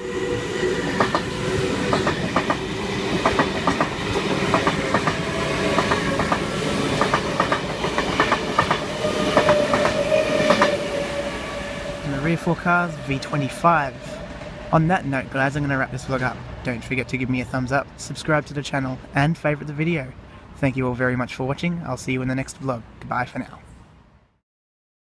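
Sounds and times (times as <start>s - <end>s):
steady tone: 0.0s - 16.0s
train rolling rumble: 0.0s - 19.2s
wheels clacking over rail joints: 0.8s - 14.8s.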